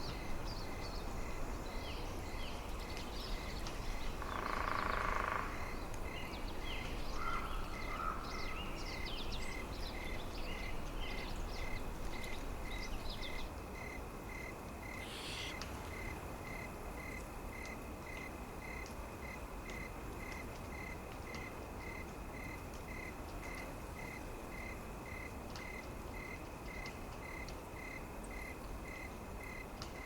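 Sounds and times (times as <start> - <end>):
low rumble of wind: 0.0 - 30.0
small birds chirping: 14.8 - 16.1
faint high pip: 15.0 - 15.9.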